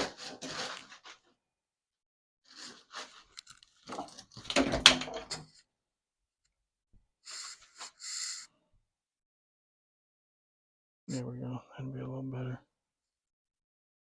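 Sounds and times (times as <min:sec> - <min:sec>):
camera handling rustles and clicks: 0:03.2 - 0:03.9.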